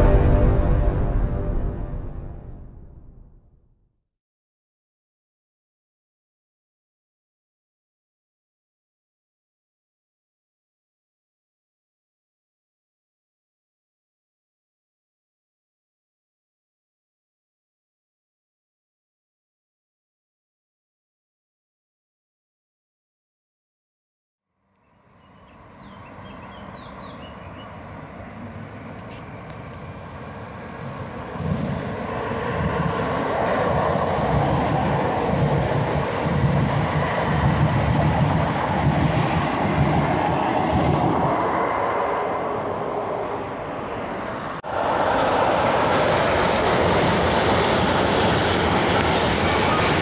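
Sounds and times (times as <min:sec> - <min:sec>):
freight train rolling past: 0:00.0 - 0:03.4, 0:25.2 - 0:50.0
passenger train passing: 0:00.0 - 0:03.5, 0:25.0 - 0:50.0.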